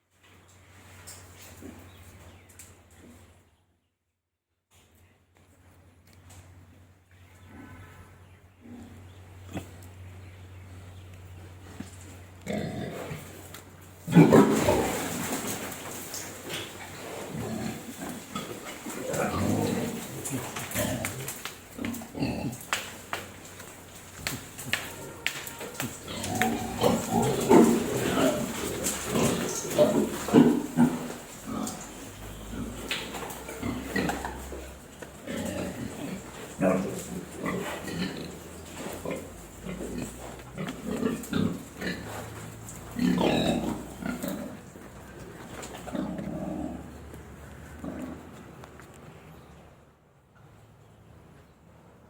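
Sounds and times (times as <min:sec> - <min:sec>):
pigs grunting: 0:12.4 - 0:48.6.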